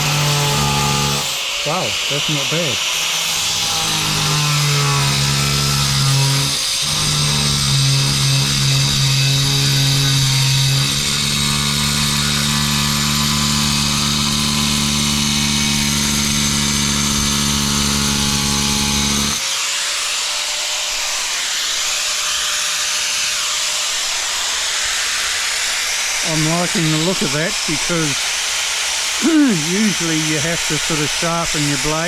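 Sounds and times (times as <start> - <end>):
angle grinder cutting tile: 0.0 - 32.0
steady hiss: 26.1 - 32.0.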